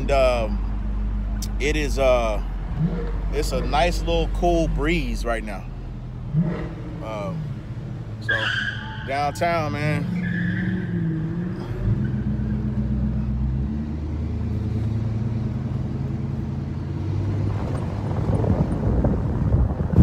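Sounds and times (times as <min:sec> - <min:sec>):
car engine rumbling: 0:00.0 - 0:20.0
road noise: 0:00.0 - 0:20.0
wind noise: 0:17.1 - 0:20.0.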